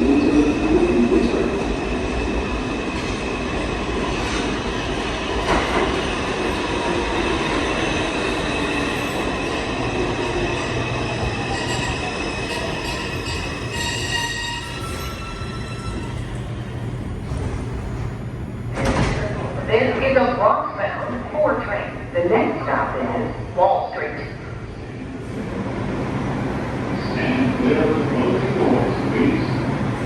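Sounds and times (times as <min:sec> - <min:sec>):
train cars rumbling and clattering: 0:00.0 - 0:30.0
train wheels squealing: 0:07.8 - 0:16.6.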